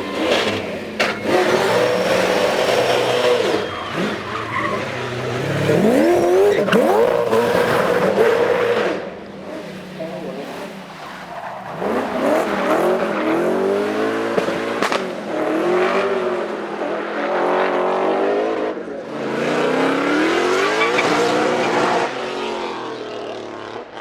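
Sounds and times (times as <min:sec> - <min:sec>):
race car engine revving: 0:00.0 - 0:24.0
tyres skidding on tarmac: 0:00.0 - 0:24.0.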